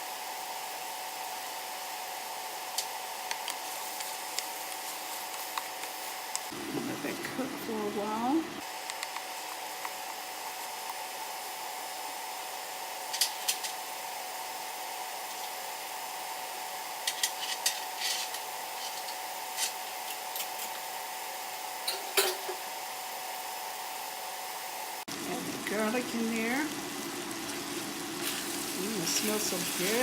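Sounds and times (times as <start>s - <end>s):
kitchen hum: 0.0s - 30.0s
cookware clinking: 21.9s - 22.6s.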